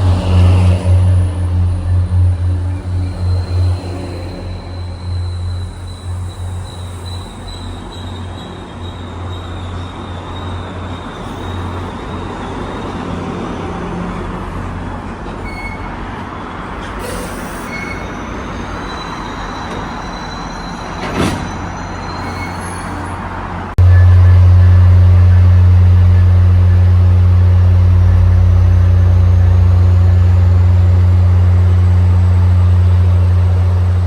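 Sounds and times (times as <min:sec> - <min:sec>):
high wheel squeal: 0:00.0 - 0:24.0
train running on rails: 0:00.0 - 0:34.0.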